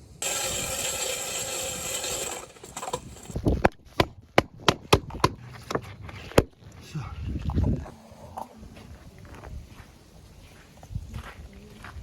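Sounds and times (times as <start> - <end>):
motor saw cutting wood: 0.0 - 3.4.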